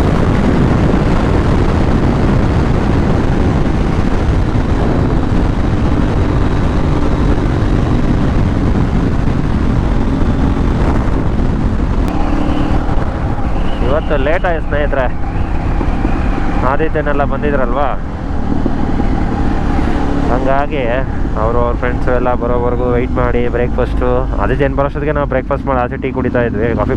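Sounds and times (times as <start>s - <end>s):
motorcycle engine: 0.0s - 26.9s
wind rush on microphone: 0.0s - 26.9s.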